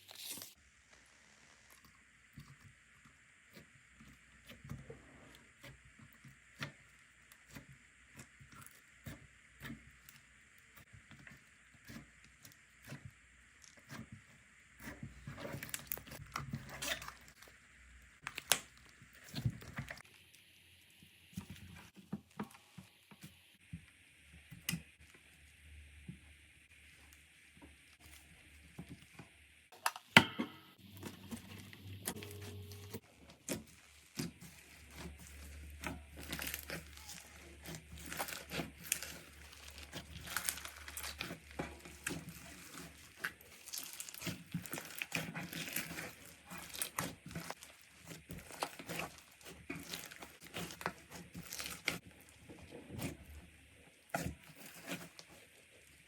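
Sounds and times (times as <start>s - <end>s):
slime crackling and popping: 18.2s - 20.4s, 33.2s - 53.2s, 54.1s - 55.5s.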